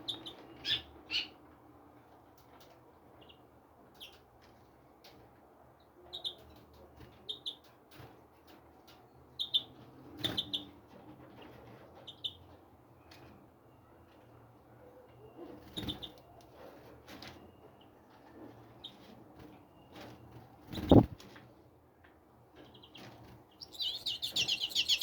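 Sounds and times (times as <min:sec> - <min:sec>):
small birds chirping: 0:00.0 - 0:01.4, 0:06.1 - 0:07.7, 0:09.4 - 0:10.8, 0:12.1 - 0:12.5, 0:15.6 - 0:16.5, 0:19.8 - 0:21.2, 0:22.6 - 0:25.0.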